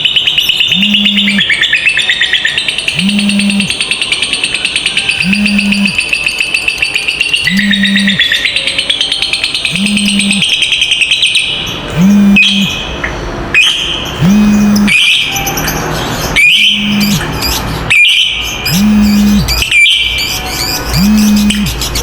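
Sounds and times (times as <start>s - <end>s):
lovebirds chattering shrilly: 0.0s - 22.0s
low steady hum: 2.9s - 3.7s, 5.2s - 6.0s, 9.7s - 10.4s, 11.9s - 13.5s, 14.1s - 15.0s, 15.8s - 17.9s, 18.6s - 19.7s, 20.4s - 22.0s.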